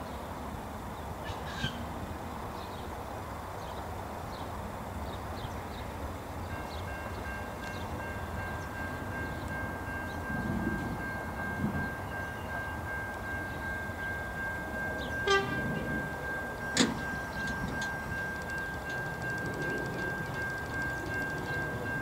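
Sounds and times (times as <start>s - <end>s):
train engine and rail rumble: 0.0s - 22.0s
thin high tone: 15.0s - 22.0s.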